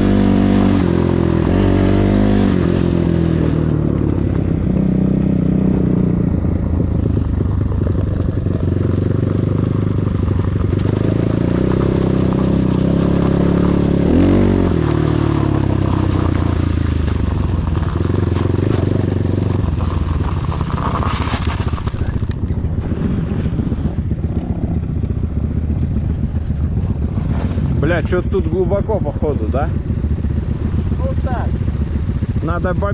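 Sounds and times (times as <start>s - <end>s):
motorcycle engine running: 0.0s - 32.9s
short rushing noise: 19.8s - 24.1s.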